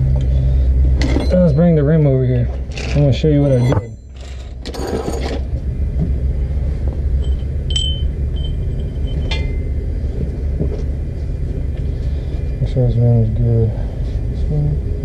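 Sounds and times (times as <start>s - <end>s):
steady low rumble: 0.0s - 15.0s
ringing metallic clink: 3.4s - 5.2s, 7.2s - 9.8s.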